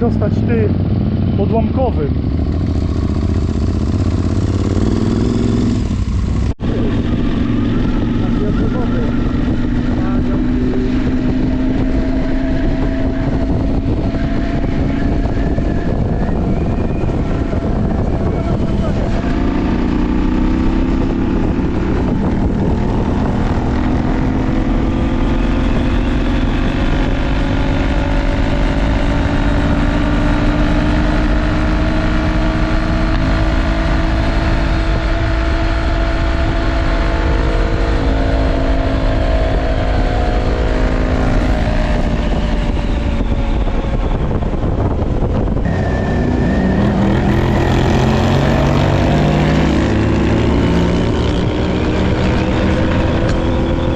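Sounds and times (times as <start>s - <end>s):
motorcycle engine running: 0.0s - 53.9s
wind and road noise: 0.0s - 53.9s.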